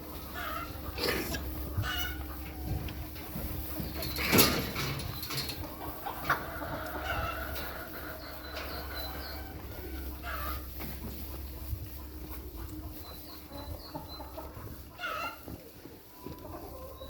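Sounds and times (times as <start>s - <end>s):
farm animal calls: 0.0s - 17.0s.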